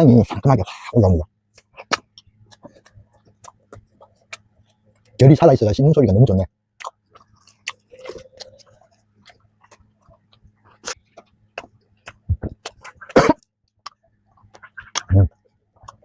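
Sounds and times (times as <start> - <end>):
pastry crunching while chewed: 6.8 - 13.2.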